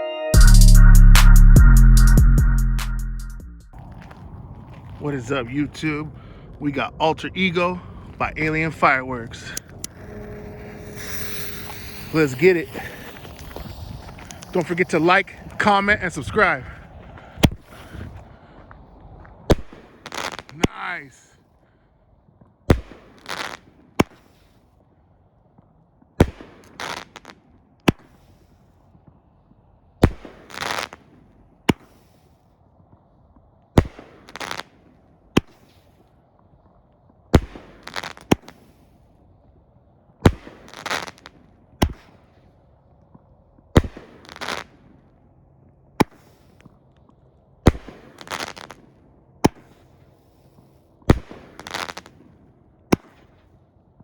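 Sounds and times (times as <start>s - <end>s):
firework crisp report: 3.4s - 18.2s, 19.5s - 21.2s, 47.7s - 52.2s
firework launch bangs: 8.8s - 16.8s, 47.7s - 48.8s, 51.1s - 52.2s
firework hissing burst: 9.3s - 16.6s.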